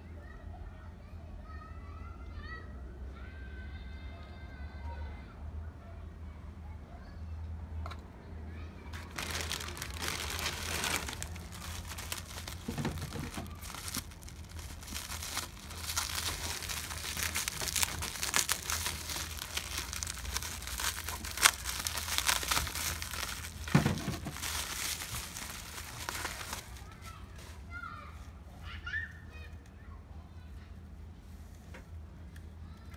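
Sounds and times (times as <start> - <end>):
packaging crinkling: 8.9 - 27.5
sharp snaps or rips: 9.0 - 23.7.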